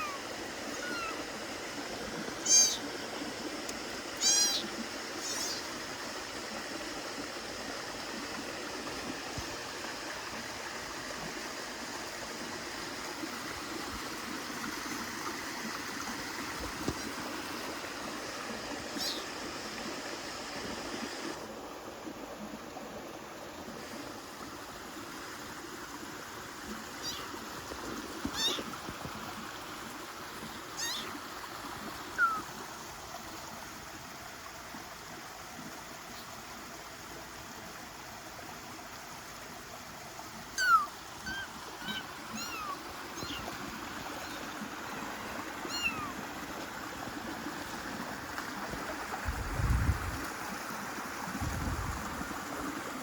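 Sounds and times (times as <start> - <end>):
kittens mewing: 0.0 - 1.2, 2.4 - 2.8, 4.2 - 5.6, 27.0 - 27.3, 28.3 - 28.7, 30.8 - 31.2, 40.6 - 43.5, 45.7 - 46.2.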